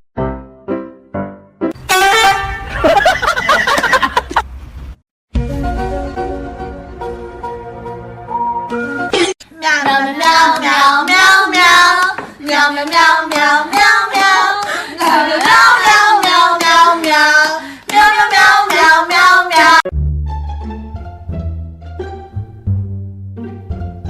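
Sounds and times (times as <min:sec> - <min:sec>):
plucked bass-string music: 0:19.9 - 0:24.0.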